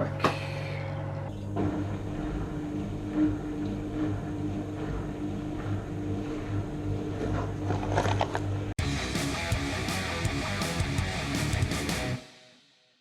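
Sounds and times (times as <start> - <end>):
drain pump electric hum: 0.0 - 12.2.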